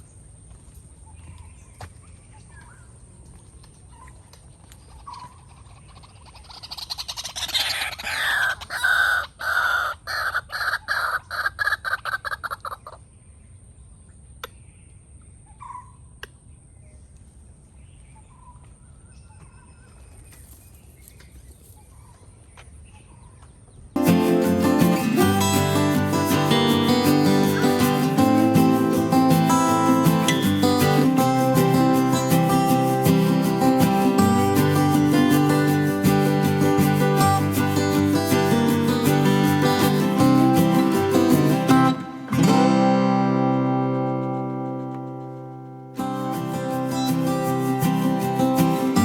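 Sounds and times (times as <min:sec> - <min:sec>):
bird harsh repeated calls: 0:04.9 - 0:13.0, 0:24.5 - 0:42.5
steady high thin tone: 0:24.0 - 0:45.4.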